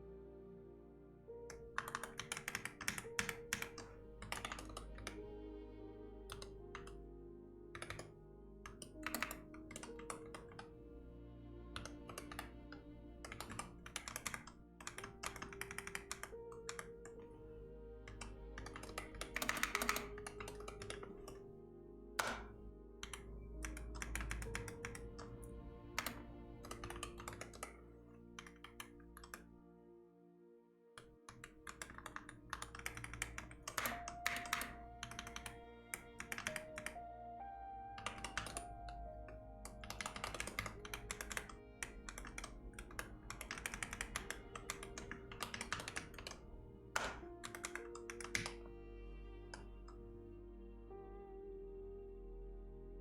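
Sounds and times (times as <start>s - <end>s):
soft background music: 0.0s - 53.0s
typing on keyboard: 1.5s - 5.2s, 7.8s - 10.7s, 13.2s - 17.3s, 18.1s - 21.4s, 22.2s - 25.3s, 26.0s - 29.4s, 31.0s - 37.0s, 38.0s - 48.7s.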